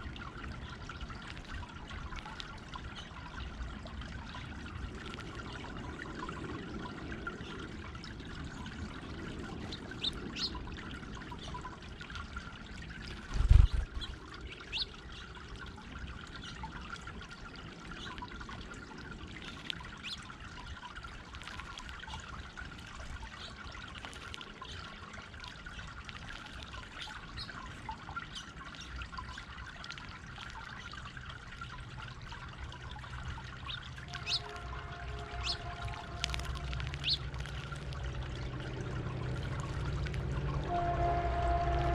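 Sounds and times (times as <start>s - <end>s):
fountain water trickling and splashing: 0.0s - 41.9s.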